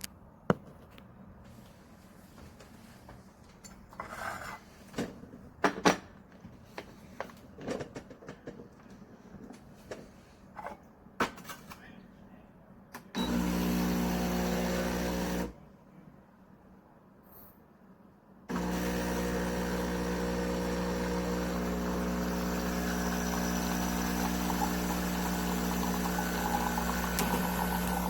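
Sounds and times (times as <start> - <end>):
espresso machine pump buzzing: 13.2 - 15.5, 18.5 - 28.0.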